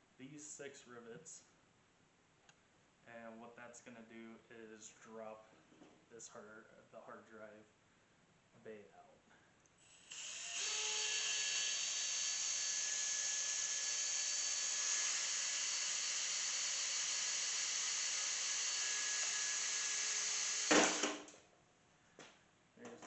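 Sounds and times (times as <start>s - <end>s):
power drill whining: 9.9s - 21.2s.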